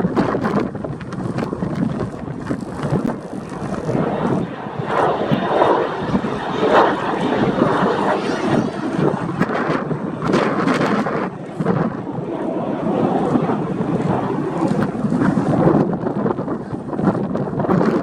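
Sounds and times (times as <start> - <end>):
jet engine noise: 0.0 - 18.0
wind buffeting microphone: 0.0 - 18.0.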